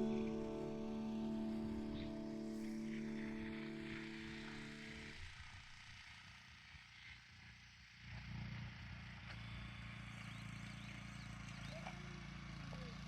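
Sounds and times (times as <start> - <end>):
background music with held notes: 0.0 - 5.7
low steady hum: 0.0 - 6.0
faint outdoor ambience: 0.0 - 13.0.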